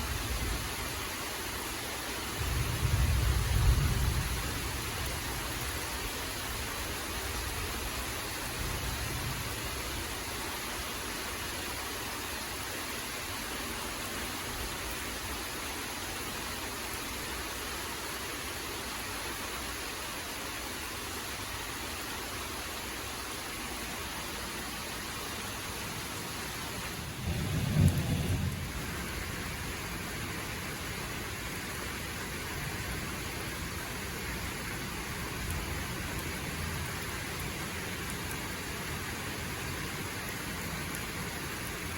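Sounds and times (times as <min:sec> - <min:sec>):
rain hissing: 0:00.0 - 0:41.9
low rumble: 0:27.1 - 0:29.1.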